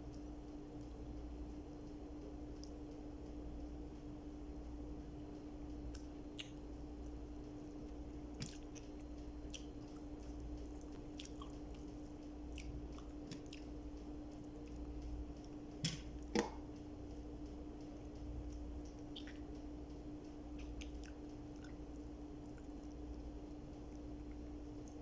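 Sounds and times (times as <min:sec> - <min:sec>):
steady low hum: 0:00.0 - 0:25.0
person chewing food: 0:05.8 - 0:17.2, 0:18.0 - 0:19.6, 0:20.4 - 0:25.0
wet mouth clicks and smacks: 0:05.9 - 0:06.7, 0:07.9 - 0:13.8, 0:18.5 - 0:19.5, 0:20.6 - 0:23.0.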